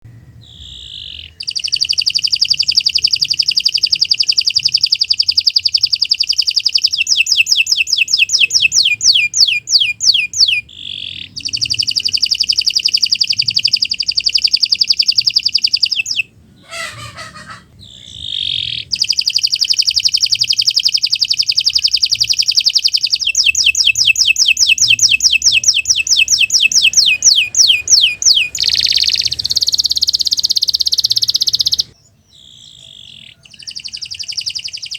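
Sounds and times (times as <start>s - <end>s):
canary singing rolling trills: 0.0s - 34.9s.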